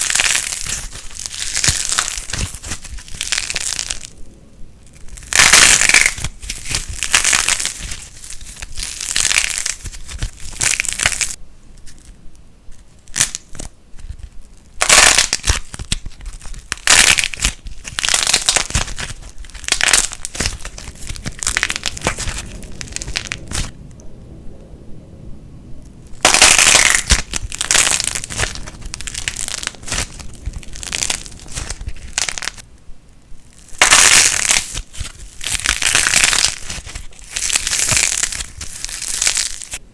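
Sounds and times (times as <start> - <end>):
plasticine crackling by hand: 0.0 - 4.1, 4.9 - 23.7, 26.2 - 32.6, 33.4 - 39.8.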